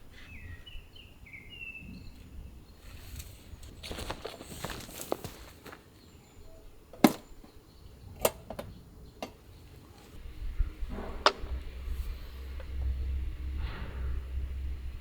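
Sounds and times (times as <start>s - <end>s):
low rumble: 10.2s - 15.0s
sharp clicks and knocks: 10.6s - 14.8s.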